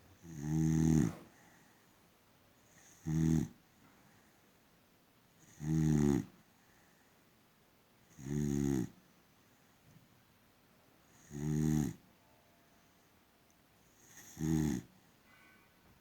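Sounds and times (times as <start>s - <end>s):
dog snoring: 0.2s - 1.6s, 2.6s - 3.6s, 5.4s - 6.4s, 8.1s - 9.0s, 11.1s - 12.0s, 13.9s - 14.9s.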